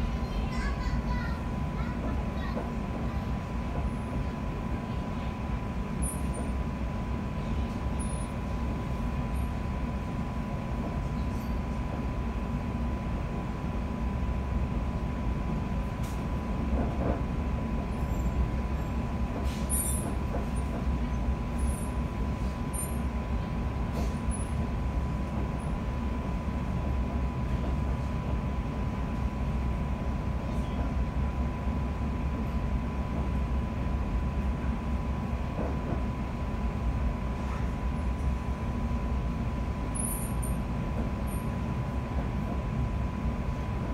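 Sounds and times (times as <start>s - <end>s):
wheels rumbling on track: 14.8s - 43.9s.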